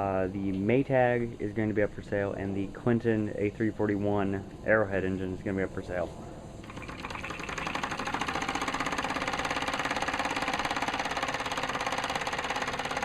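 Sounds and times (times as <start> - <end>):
model steam engine running fast: 6.7 - 13.0.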